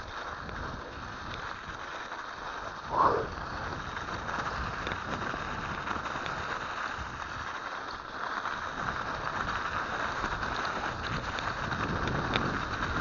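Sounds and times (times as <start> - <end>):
bike clicks and rattles: 4.2 - 13.0.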